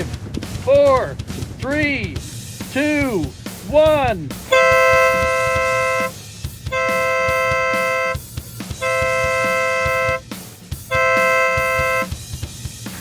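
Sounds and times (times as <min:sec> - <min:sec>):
air horn blasts: 0:04.5 - 0:10.2, 0:10.8 - 0:12.2.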